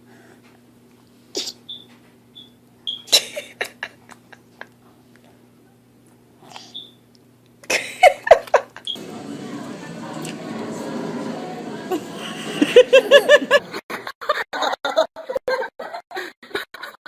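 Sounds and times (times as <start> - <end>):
low electrical hum: 0.0 - 13.8
baby lip smacks and clicks: 6.5 - 6.8.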